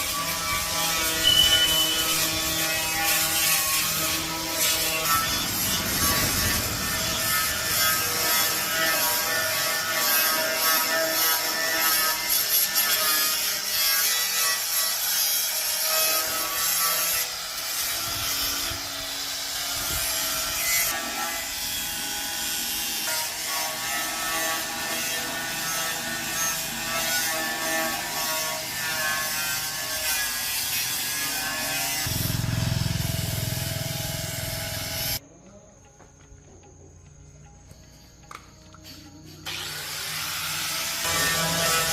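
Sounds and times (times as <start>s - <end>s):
tool rubbing on a surface: 0.0s - 19.3s.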